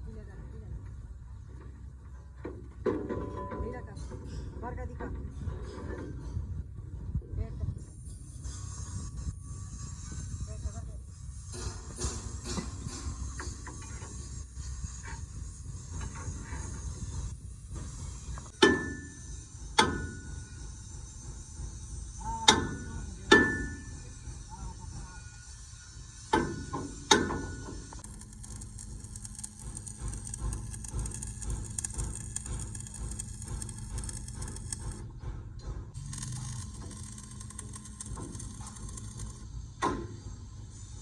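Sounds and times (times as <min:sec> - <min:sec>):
mechanical noise with low hum: 0:00.0 - 0:41.0
hammer striking steel: 0:18.6 - 0:20.7, 0:22.2 - 0:24.2, 0:26.2 - 0:35.0, 0:35.9 - 0:40.5.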